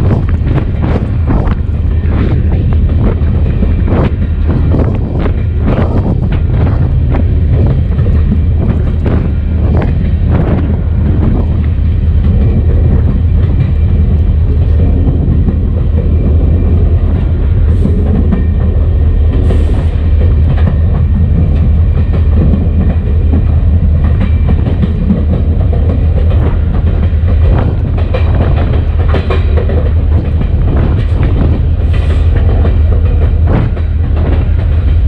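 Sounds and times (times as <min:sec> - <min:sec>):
diesel locomotive rumble: 0:00.0 - 0:35.0
wheels clicking over rail joints: 0:17.8 - 0:35.0.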